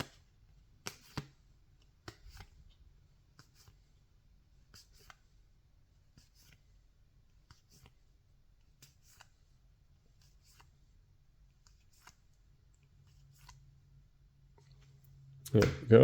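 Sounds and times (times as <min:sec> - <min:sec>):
trading cards being handled: 0:08.7 - 0:09.4, 0:11.4 - 0:13.6.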